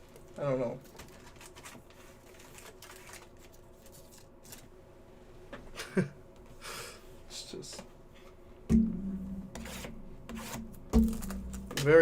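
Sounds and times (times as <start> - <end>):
trading cards rustling and clicking: 0.8 - 4.7.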